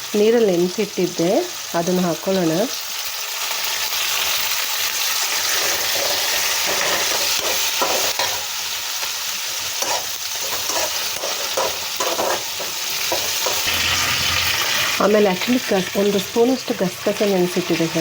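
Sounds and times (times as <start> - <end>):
food sizzling in oil: 0.0 - 18.0
spoon stirring and scraping pan: 5.4 - 8.6, 9.6 - 16.2.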